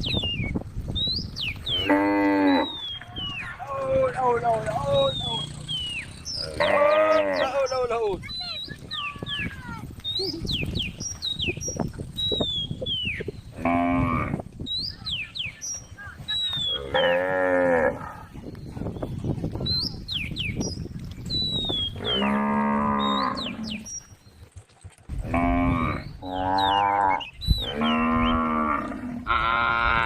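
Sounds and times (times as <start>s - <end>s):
cow mooing: 1.8s - 2.8s, 6.4s - 7.6s, 16.9s - 18.2s, 22.0s - 23.8s, 25.2s - 30.0s
high whistling calls: 2.5s - 3.6s, 4.9s - 13.4s.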